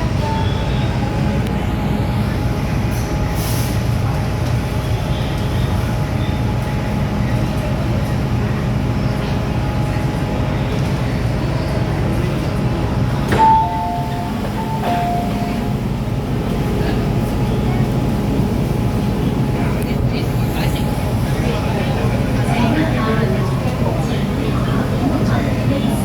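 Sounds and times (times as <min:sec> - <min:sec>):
metro car rumbling: 0:00.0 - 0:26.0
two-note electronic chime: 0:13.3 - 0:15.9.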